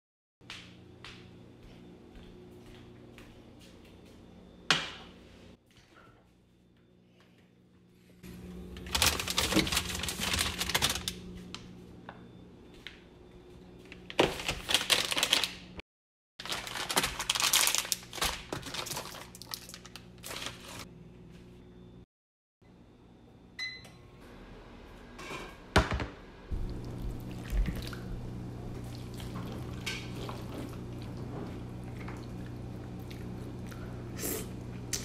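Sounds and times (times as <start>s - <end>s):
steady low hum: 26.2s - 35.0s.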